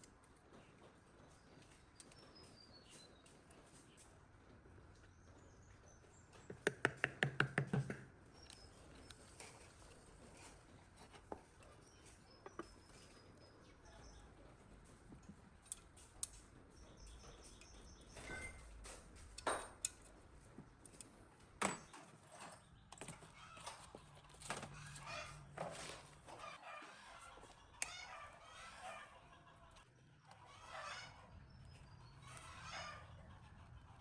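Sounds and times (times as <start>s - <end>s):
birds chirping: 0.5s - 6.9s, 7.5s - 18.8s, 26.2s - 34.0s.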